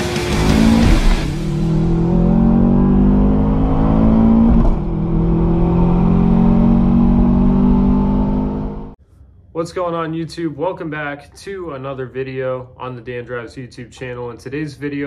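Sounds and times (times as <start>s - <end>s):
loud car engine at high revs: 0.0s - 9.0s.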